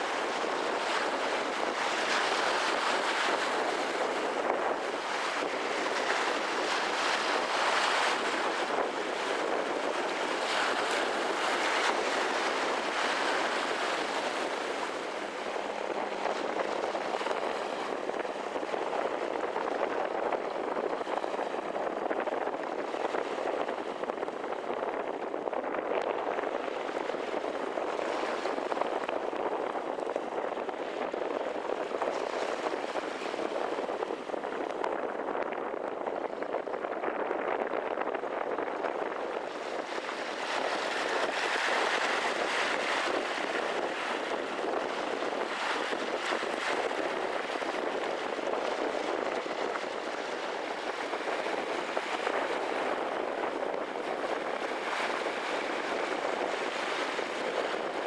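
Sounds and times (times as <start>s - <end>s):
rushing water: 0.0s - 35.4s, 38.2s - 58.0s
wind: 0.0s - 58.0s.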